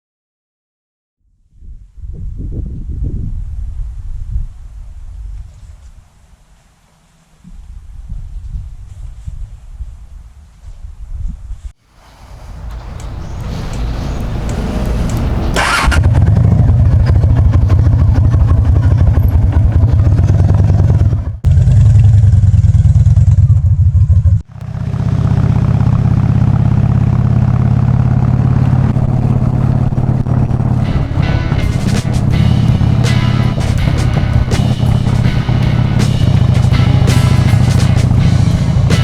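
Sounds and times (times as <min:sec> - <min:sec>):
short burst of noise: 0:12.0 - 0:16.5
motorcycle engine running: 0:12.3 - 0:39.0.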